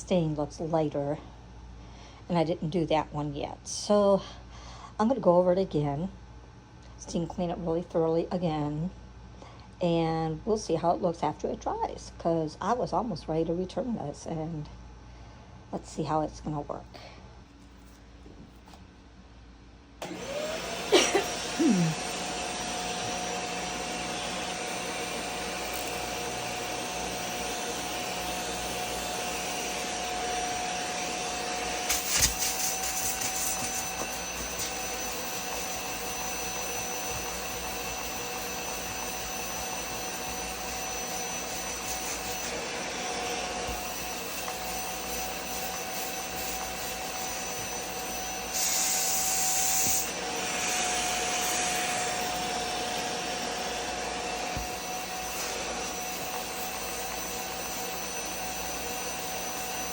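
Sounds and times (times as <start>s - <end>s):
suction motor whine: 20.0s - 59.9s.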